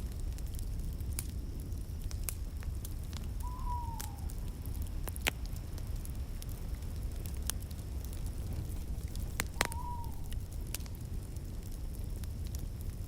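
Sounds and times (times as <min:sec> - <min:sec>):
fire flames rumbling: 0:00.0 - 0:03.4, 0:04.2 - 0:13.0
fire crackling and popping: 0:00.0 - 0:13.0
faint falling whistle: 0:03.4 - 0:04.4, 0:08.4 - 0:10.6.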